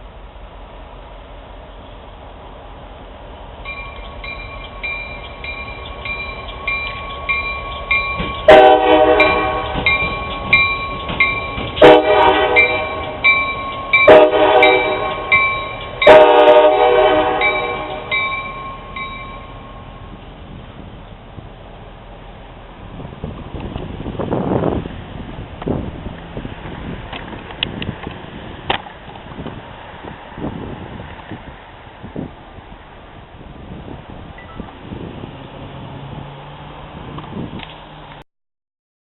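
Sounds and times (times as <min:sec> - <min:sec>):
crossing warning bell dinging: 0:03.6 - 0:20.2, 0:34.4 - 0:34.7
locomotive air horn blasts: 0:08.5 - 0:09.8, 0:11.8 - 0:13.2, 0:14.0 - 0:15.4, 0:16.0 - 0:18.2.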